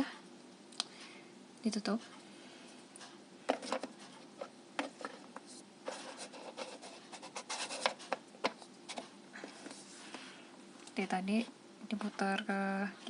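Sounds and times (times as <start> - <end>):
plastic scraping on plastic: 3.5 - 10.2.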